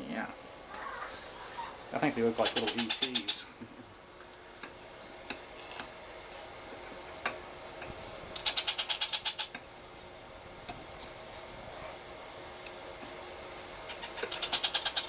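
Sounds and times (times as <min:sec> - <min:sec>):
parrot chick clicking: 0:08.4 - 0:09.6.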